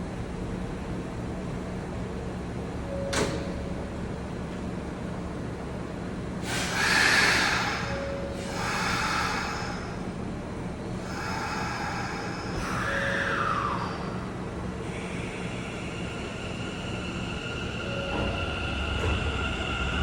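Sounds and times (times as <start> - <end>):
train electrical hum: 0.0 - 20.0.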